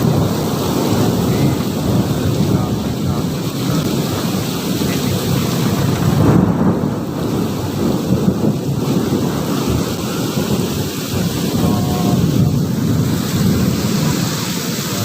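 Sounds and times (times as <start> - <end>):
rain falling: 0.0 - 15.0
thunder rumbling: 0.0 - 15.0.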